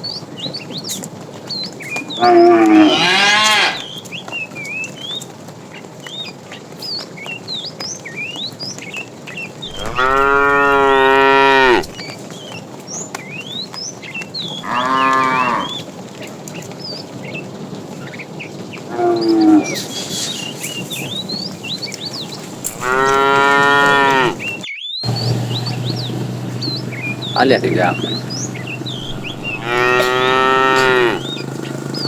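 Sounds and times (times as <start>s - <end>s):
small birds chirping: 0.0s - 32.0s
cattle mooing: 2.2s - 3.8s, 9.7s - 12.0s, 14.6s - 15.8s, 18.9s - 19.9s, 22.6s - 24.5s, 25.1s - 31.4s.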